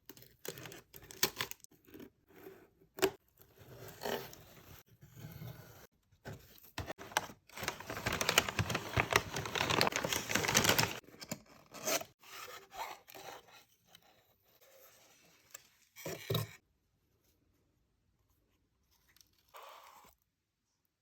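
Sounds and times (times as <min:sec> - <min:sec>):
packaging crinkling and tearing: 0:07.0 - 0:11.0.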